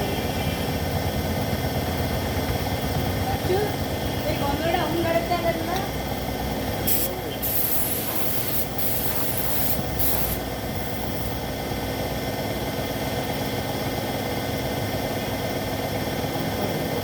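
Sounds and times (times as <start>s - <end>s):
machine hum: 5.9s - 13.6s
paint spray gun hissing: 6.8s - 11.4s.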